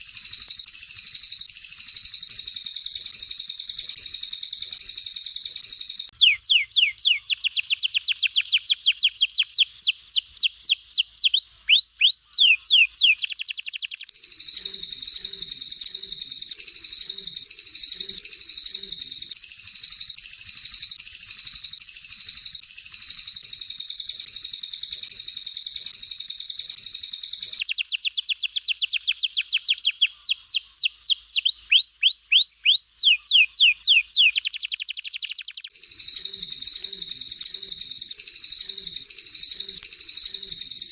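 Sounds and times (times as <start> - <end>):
down-slurred whistled bird notes: 0.0 - 40.9
high chattering bird trill: 0.0 - 40.9.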